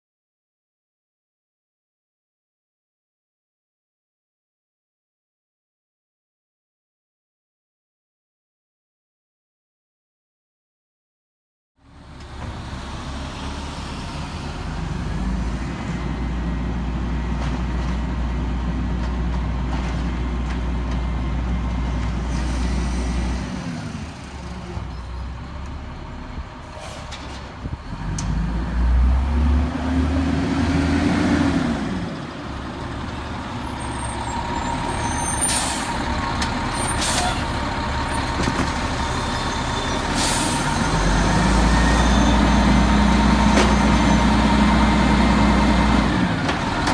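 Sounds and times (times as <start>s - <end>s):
garbage truck diesel engine revving: 27.9s - 46.9s
air brake hisses: 35.3s - 36.1s, 36.8s - 37.6s, 40.1s - 40.8s.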